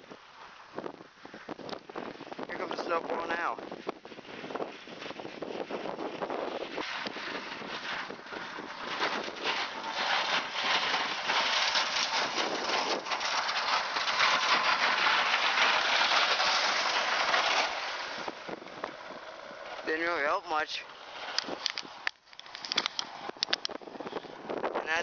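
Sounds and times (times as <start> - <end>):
wind-driven snow hissing on microphone: 0.7 - 18.6.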